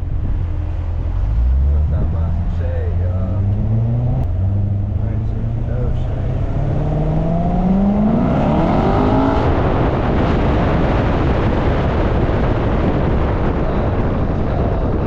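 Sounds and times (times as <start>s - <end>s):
engine speeding up: 0.0s - 15.0s.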